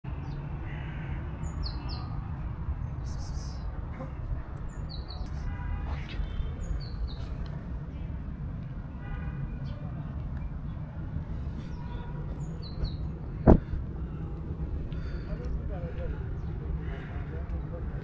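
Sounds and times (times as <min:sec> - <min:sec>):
small birds chirping: 0:00.1 - 0:02.2, 0:04.5 - 0:08.2, 0:09.5 - 0:17.7
low outdoor rumble: 0:09.8 - 0:18.0.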